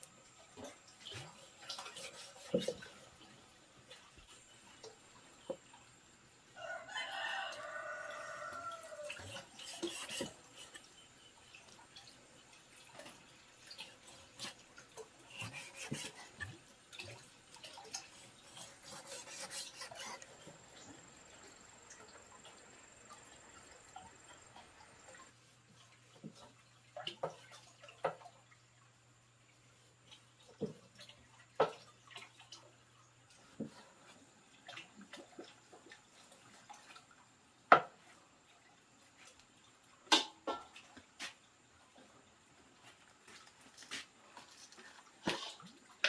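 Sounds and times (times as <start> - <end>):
rooster crowing: 6.6 - 9.4.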